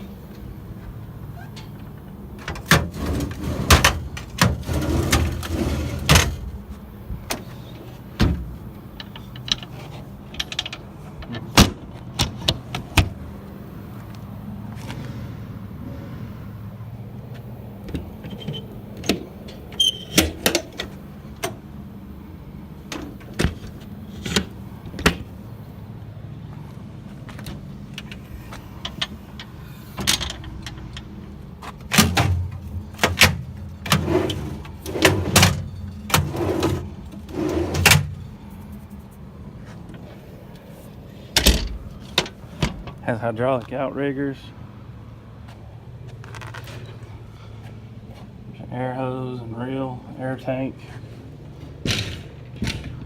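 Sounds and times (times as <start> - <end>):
steady low hum: 0.0 - 46.2
truck doors and latches clicking: 1.2 - 13.2, 17.8 - 21.7, 22.8 - 25.4, 27.4 - 38.2, 41.3 - 43.0.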